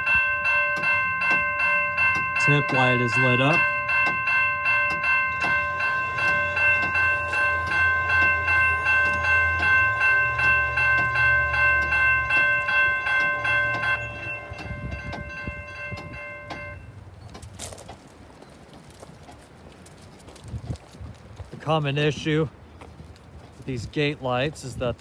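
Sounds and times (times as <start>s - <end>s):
railroad crossing bells ringing: 0.0s - 17.0s.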